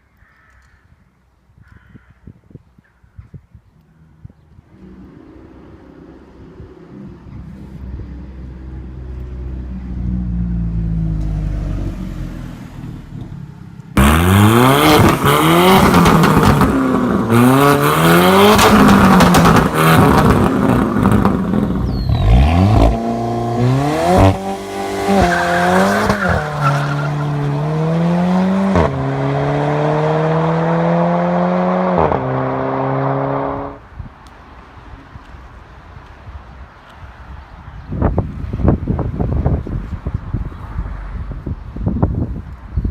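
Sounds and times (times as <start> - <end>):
car engine revving and accelerating: 14.0 - 33.8.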